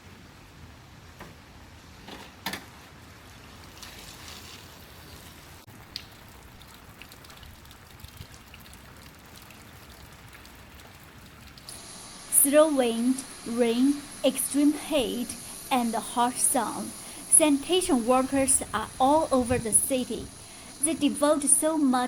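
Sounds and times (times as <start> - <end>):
heavy rain and running water: 5.6 - 22.0.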